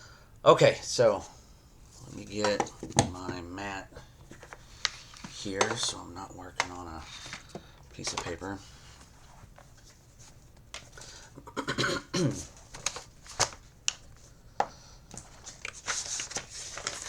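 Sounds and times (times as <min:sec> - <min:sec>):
rustling: 0:01.2 - 0:11.3, 0:15.1 - 0:17.0.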